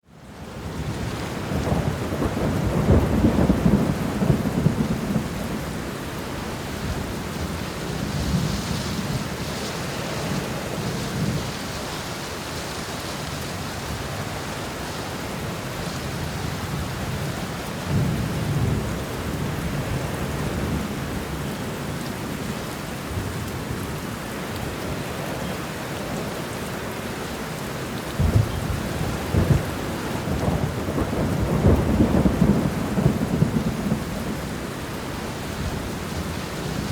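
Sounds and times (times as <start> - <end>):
heavy rain on car window: 0.3 - 36.9
thunder rumbling: 0.7 - 11.7, 28.2 - 36.9.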